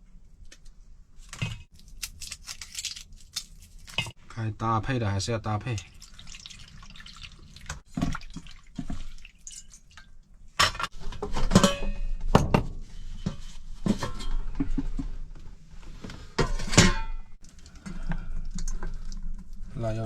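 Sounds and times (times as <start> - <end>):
dripping water: 5.7 - 10.4
dishes and utensils clattering: 10.6 - 12.6, 16.4 - 17.2.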